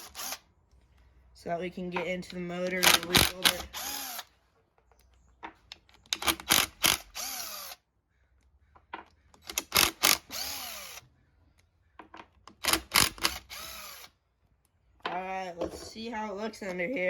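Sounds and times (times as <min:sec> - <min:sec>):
cordless drill whirring: 0:00.0 - 0:00.4, 0:02.8 - 0:04.3, 0:06.1 - 0:07.8, 0:09.4 - 0:11.1, 0:12.5 - 0:14.2
sharp clicks: 0:04.9 - 0:07.4, 0:08.4 - 0:10.5.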